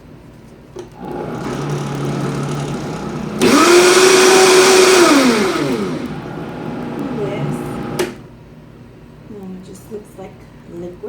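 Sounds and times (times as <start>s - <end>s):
blender motor whine: 0.9s - 8.2s.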